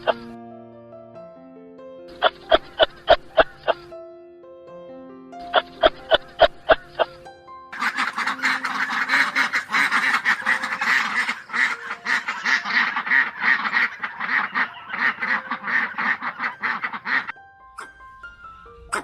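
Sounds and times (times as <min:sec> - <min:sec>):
waterfowl calling: 0:02.1 - 0:03.9, 0:07.8 - 0:18.0.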